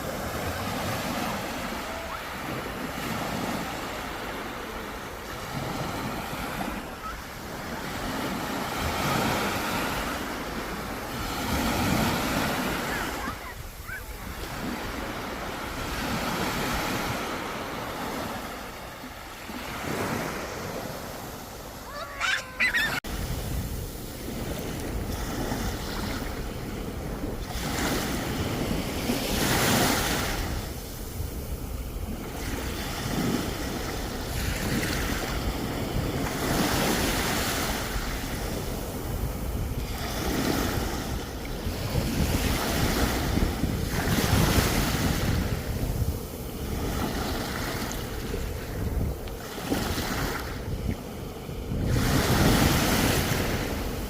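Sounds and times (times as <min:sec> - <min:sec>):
sea waves breaking: 0:00.0 - 0:54.0
wind on microphone: 0:19.8 - 0:54.0.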